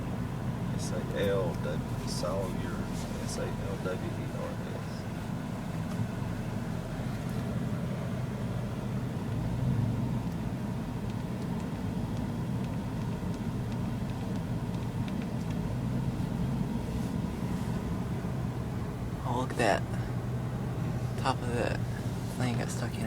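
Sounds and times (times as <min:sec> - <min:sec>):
car engine and road hum: 0:00.0 - 0:23.0.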